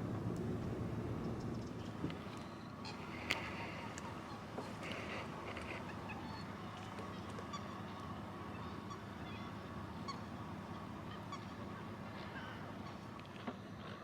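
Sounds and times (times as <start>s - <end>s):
waterbirds honking and peeping: 2.8s - 13.0s.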